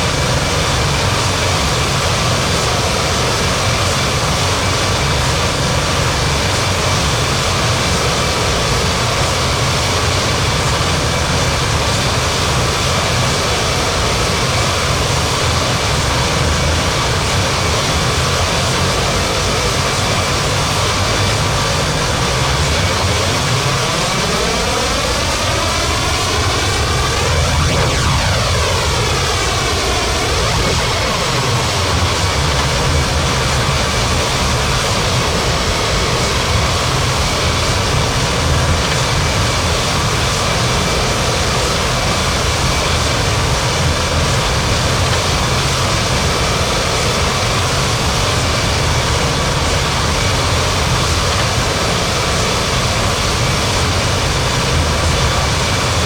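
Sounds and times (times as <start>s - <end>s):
jet engines running loud: 0.0s - 56.0s.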